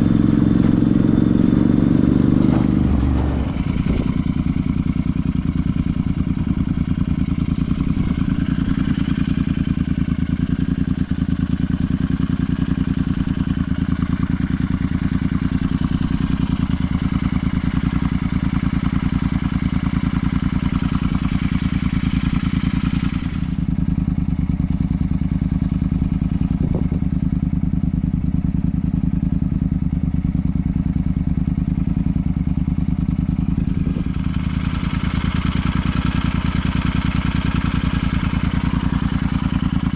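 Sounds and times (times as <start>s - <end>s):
motorcycle engine and exhaust: 0.0s - 39.9s
high rushing noise: 1.8s - 4.7s.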